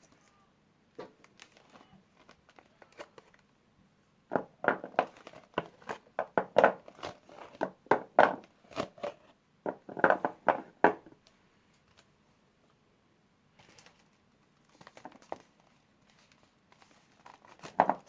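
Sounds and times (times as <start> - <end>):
soap wrapper crinkling and tearing: 4.9 - 7.7.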